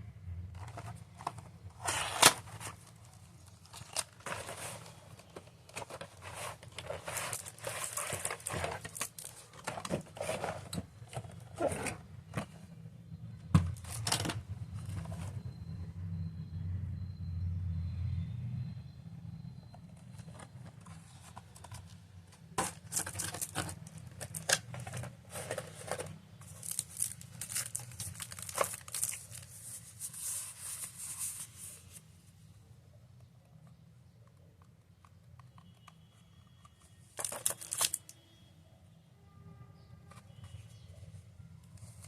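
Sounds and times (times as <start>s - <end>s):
packaging crinkling and tearing: 3.5s - 10.8s, 22.6s - 29.9s, 37.2s - 38.1s.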